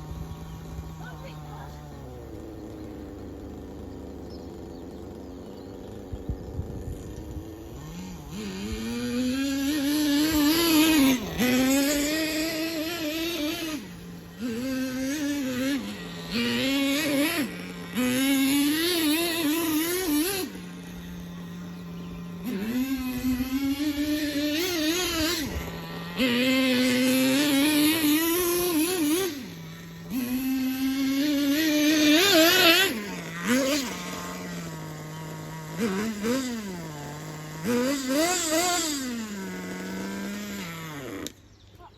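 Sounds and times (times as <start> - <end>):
small nitro engine revving: 0.0 - 41.9.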